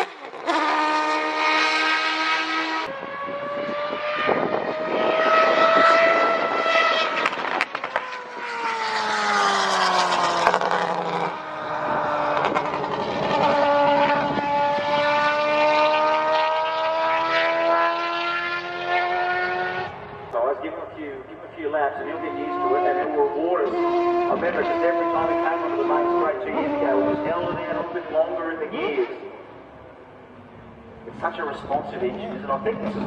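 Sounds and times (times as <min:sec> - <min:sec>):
racing engine revving: 0:00.0 - 0:20.4, 0:21.2 - 0:33.0.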